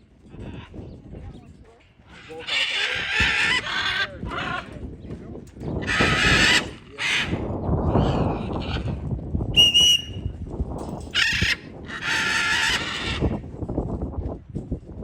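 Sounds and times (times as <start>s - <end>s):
wind rumbling on microphone: 0.0s - 15.0s
birds giving harsh calls: 2.0s - 9.0s, 11.1s - 13.4s
short clear whistle: 9.6s - 10.3s.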